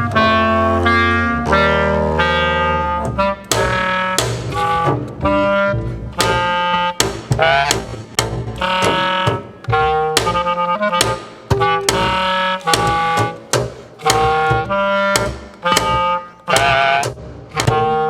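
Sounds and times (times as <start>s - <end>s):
short clarinet notes: 0.0s - 7.9s, 8.6s - 18.0s
double bass low held tone: 0.0s - 11.0s.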